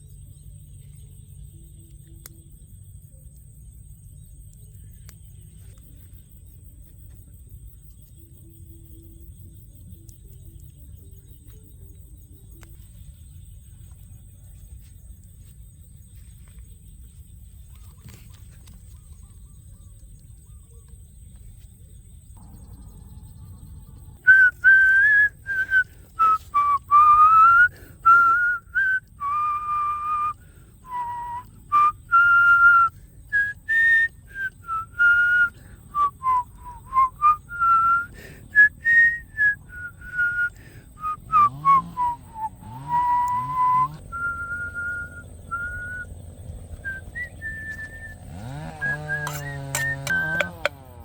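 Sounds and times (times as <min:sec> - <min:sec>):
faint low rumble: 0:00.0 - 0:27.2
person whistling a tune: 0:24.2 - 0:46.1, 0:46.8 - 0:50.7.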